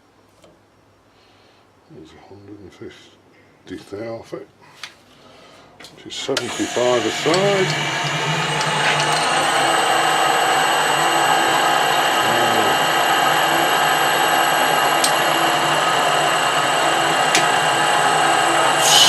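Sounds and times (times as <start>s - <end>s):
metal lathe whining: 6.2s - 19.0s.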